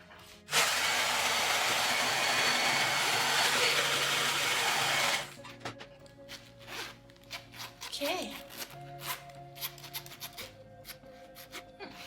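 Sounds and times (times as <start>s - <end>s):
hair dryer blowing: 0.5s - 5.3s.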